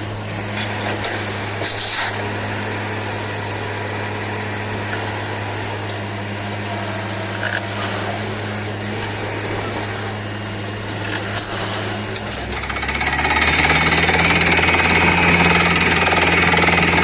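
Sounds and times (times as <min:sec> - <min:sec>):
drilling rig hum: 0:00.0 - 0:17.0.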